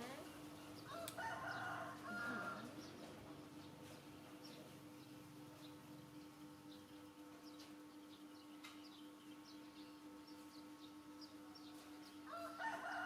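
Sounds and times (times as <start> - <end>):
birds chirping: 0.0 - 13.0
steady low hum: 0.0 - 13.0
rooster crowing: 0.9 - 2.8, 12.2 - 13.0.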